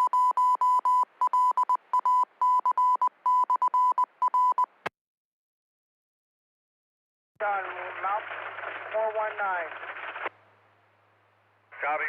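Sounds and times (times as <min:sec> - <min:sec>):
morse code beeps: 0:00.0 - 0:04.7.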